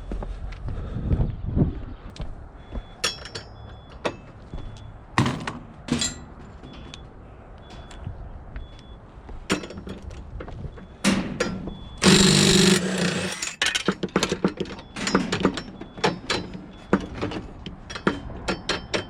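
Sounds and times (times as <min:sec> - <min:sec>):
metal knocks and clanks: 0:10.8 - 0:19.0
power tool running: 0:12.0 - 0:13.6.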